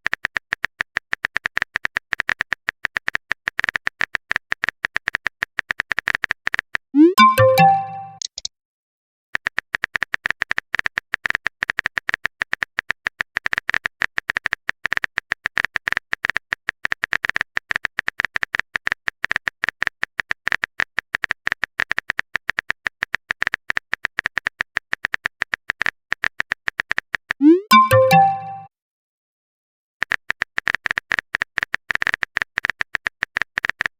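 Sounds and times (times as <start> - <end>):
typing clicks: 0.0 - 8.5, 21.8 - 28.7
message alert chime: 7.0 - 8.2, 27.4 - 28.7.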